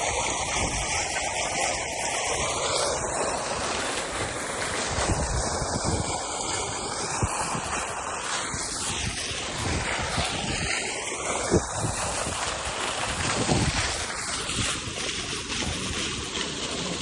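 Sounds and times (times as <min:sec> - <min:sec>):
water fountain splashing: 0:00.0 - 0:17.0
wind buffeting microphone: 0:00.0 - 0:17.0.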